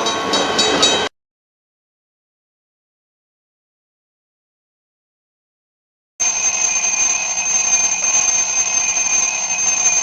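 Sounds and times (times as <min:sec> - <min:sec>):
bell ringing rapidly: 0:06.2 - 0:10.0.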